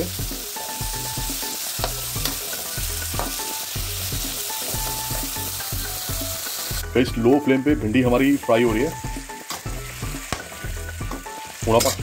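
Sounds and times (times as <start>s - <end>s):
okra sizzling in hot oil: 0.0s - 12.0s
metal spoon scraping a pan: 11.1s - 12.0s.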